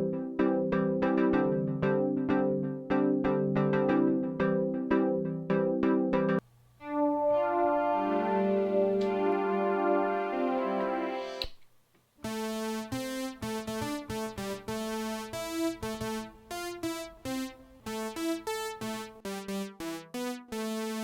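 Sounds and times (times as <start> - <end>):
synthesizer notes: 6.2 - 11.4, 12.2 - 21.0.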